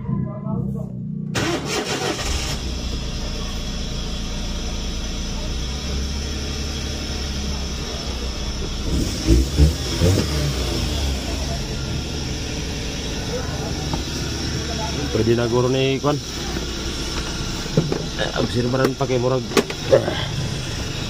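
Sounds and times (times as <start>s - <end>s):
van engine running: 0.0s - 21.0s.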